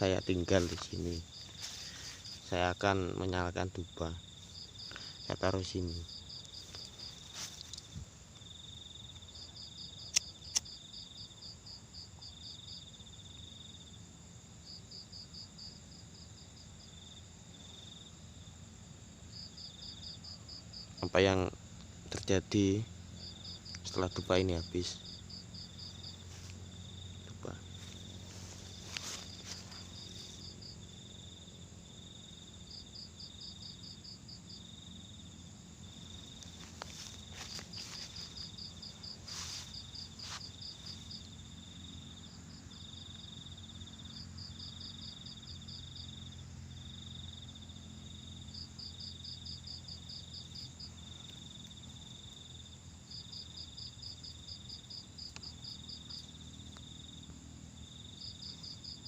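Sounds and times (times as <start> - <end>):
crickets trilling: 0.0 - 59.0
rapid pulsed cricket chirps: 0.0 - 59.0
steady low hum: 17.2 - 52.3.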